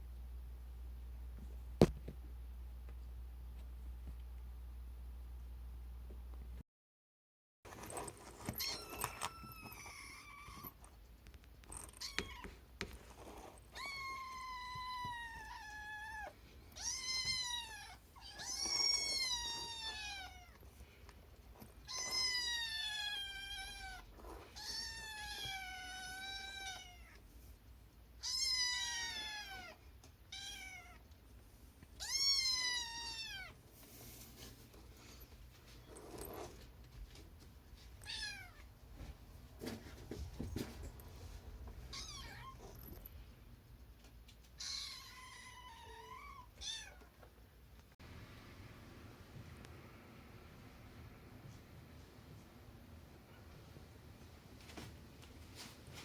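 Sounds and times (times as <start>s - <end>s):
cat meowing: 8.6s - 10.8s, 13.7s - 20.6s, 21.8s - 27.2s, 28.2s - 31.0s, 32.0s - 33.6s, 38.0s - 38.6s, 41.9s - 42.6s.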